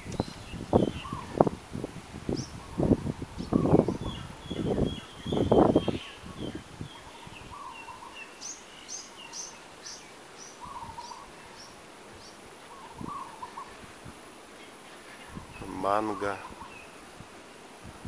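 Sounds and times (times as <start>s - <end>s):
bird lower wavering call: 0.0s - 1.4s, 2.4s - 13.8s.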